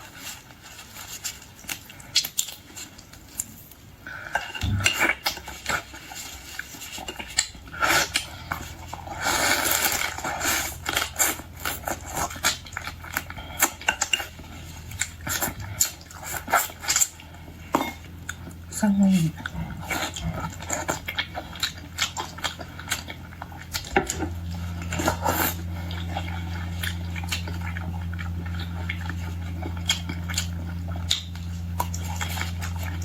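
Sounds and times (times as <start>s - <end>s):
low hum: 7.4s - 33.0s.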